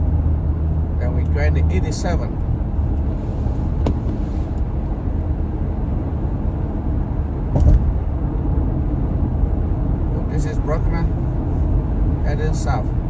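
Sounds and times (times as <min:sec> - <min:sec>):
car engine and tyres rumbling: 0:00.0 - 0:13.0
car thud over bump: 0:03.7 - 0:04.3, 0:07.5 - 0:08.0.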